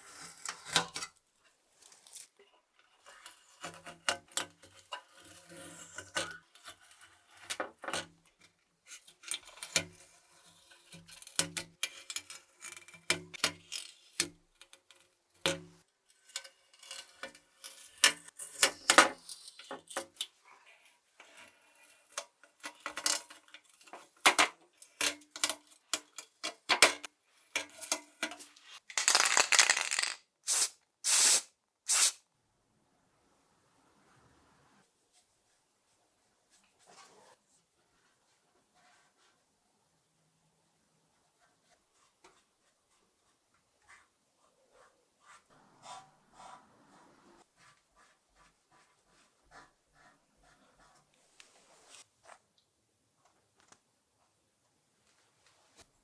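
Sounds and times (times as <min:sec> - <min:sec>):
small metal parts clinking: 0:27.6 - 0:30.2
short hiss: 0:30.5 - 0:32.2.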